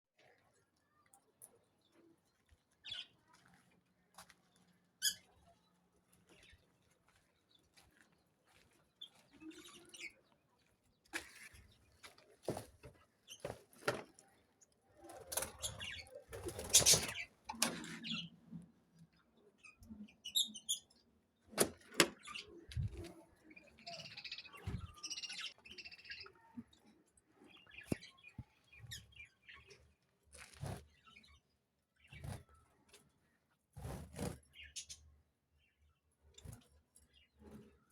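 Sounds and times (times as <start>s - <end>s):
birds chirping: 1.0s - 30.0s
birds fluttering wings: 15.2s - 17.8s.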